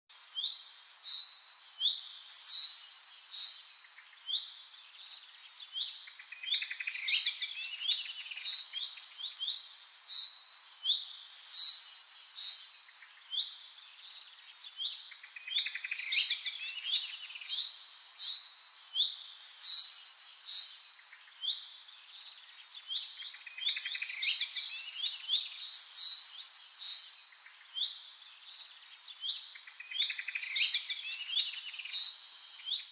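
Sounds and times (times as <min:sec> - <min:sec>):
songbirds chirping and trilling: 0:00.1 - 0:32.9.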